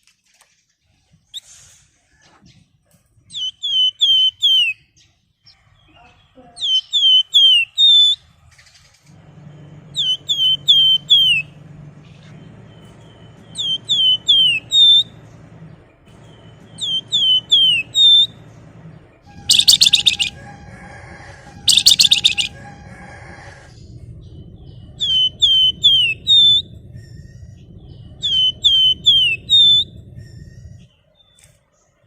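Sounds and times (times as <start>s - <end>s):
songbird whistling and trilling: 3.3s - 4.9s, 6.6s - 8.3s, 9.9s - 11.6s, 12.7s - 15.3s, 16.1s - 18.5s, 19.3s - 20.6s, 21.6s - 22.8s, 24.2s - 31.5s
faint low hum: 8.2s - 32.0s.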